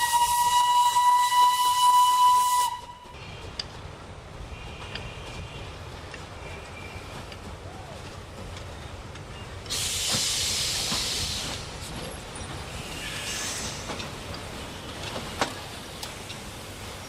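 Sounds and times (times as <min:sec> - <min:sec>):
steam locomotive hissing: 0:09.4 - 0:17.0.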